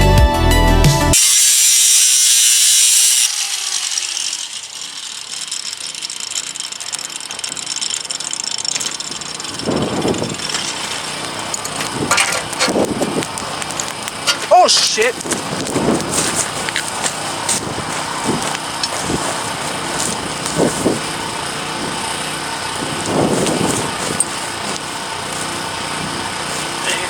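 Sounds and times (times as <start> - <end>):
angle grinder cutting steel: 1.1 - 27.0
steady hiss with bursts: 1.2 - 4.1.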